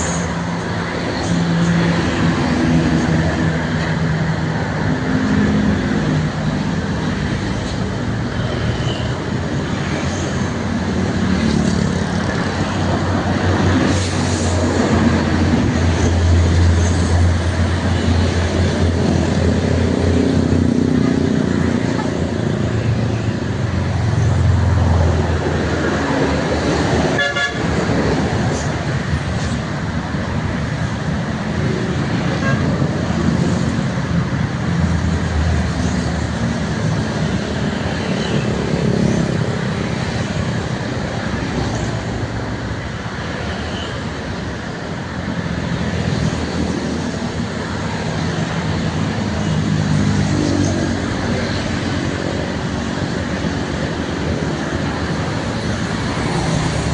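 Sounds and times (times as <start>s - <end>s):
road traffic: 0.0s - 56.9s
trucks passing with droning engines: 0.0s - 56.9s
vehicle horns: 27.1s - 27.7s, 32.4s - 32.8s.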